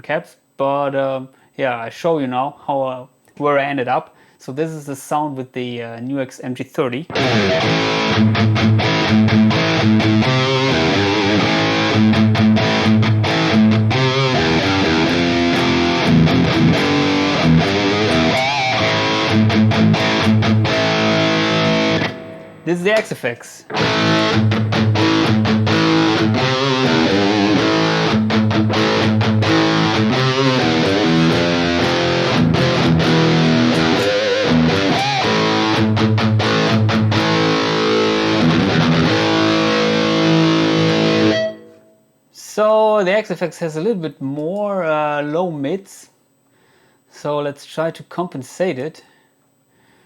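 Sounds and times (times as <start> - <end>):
distorted electric guitar riff: 7.1 - 23.1, 23.7 - 42.1.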